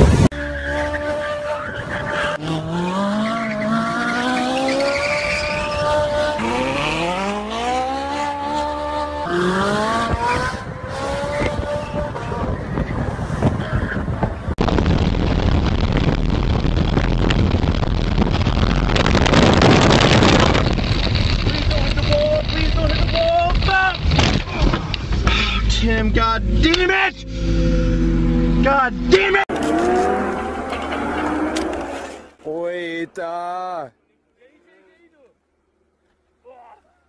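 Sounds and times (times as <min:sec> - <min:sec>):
road and wind rushing: 0:00.0 - 0:33.0
car engine accelerating: 0:24.8 - 0:32.4.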